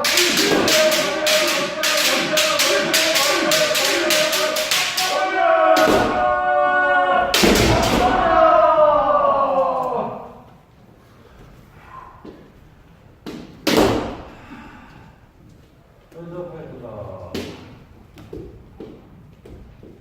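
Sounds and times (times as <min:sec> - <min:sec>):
bamboo swords clacking: 0:00.0 - 0:06.2
person shouting: 0:00.0 - 0:10.3.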